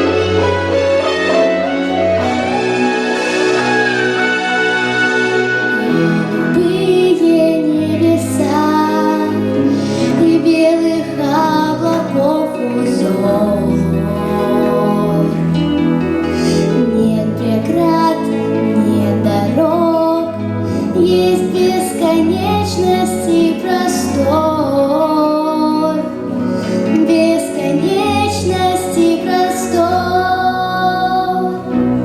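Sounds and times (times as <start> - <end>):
instrumental accompaniment: 0.0 - 32.0
girl singing: 5.7 - 15.5, 16.8 - 26.2, 26.9 - 31.8.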